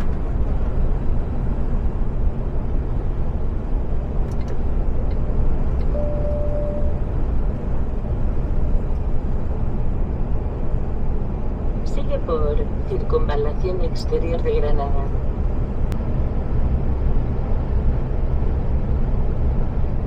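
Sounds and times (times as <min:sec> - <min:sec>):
truck engine and road drone: 0:00.0 - 0:20.0
brief steady tone: 0:05.9 - 0:07.1.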